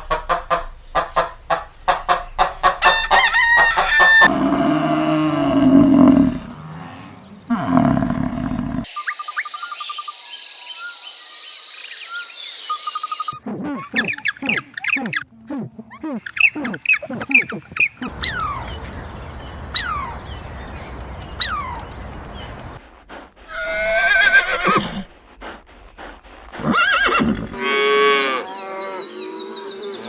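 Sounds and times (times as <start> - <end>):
falling whistled bird calls: 5.6 - 13.4, 16.3 - 22.8
rapid bird calls: 16.0 - 27.6
whistled bird trills: 16.3 - 22.8
regular ticks: 18.0 - 23.6.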